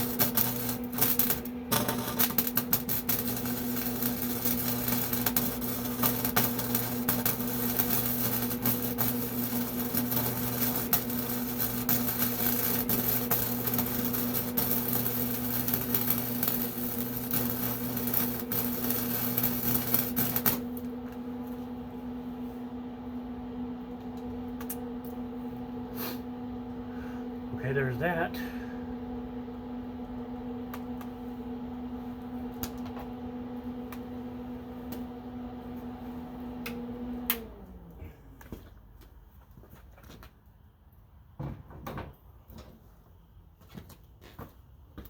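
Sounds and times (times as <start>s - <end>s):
crackling welding arc: 0.0s - 20.9s
welder mains buzz: 0.0s - 38.7s.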